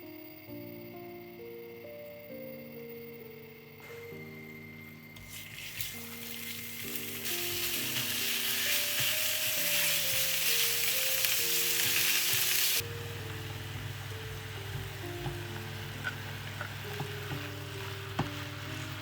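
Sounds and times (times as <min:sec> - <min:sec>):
soft background music: 0:00.0 - 0:19.0
food sizzling in a pan: 0:05.2 - 0:19.0.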